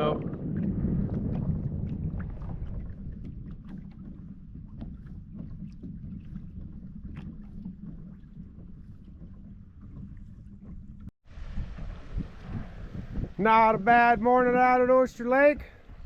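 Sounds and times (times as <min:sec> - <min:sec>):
light water splashes: 0:00.0 - 0:16.0
wind rumbling on microphone: 0:00.0 - 0:16.0
clicks against hull: 0:00.2 - 0:11.1.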